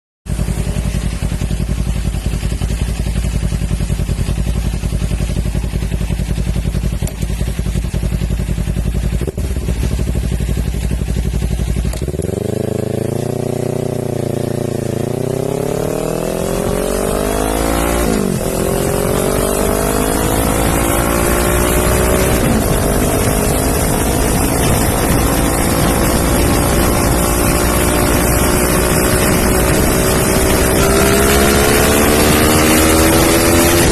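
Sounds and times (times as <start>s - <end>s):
motorcycle engine idling: 0.3s - 15.1s
motorcycle accelerating through gears: 0.3s - 33.9s.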